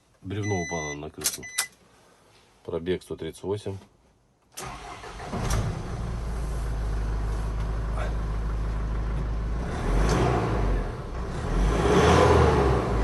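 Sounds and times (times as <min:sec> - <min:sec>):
diesel engine rumbling: 0:04.6 - 0:13.0.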